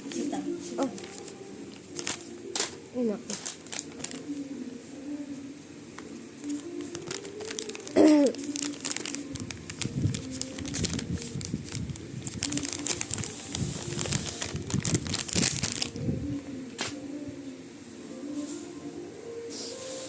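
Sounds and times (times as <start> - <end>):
material rustling and crinkling: 0.0 - 4.5, 6.0 - 17.0.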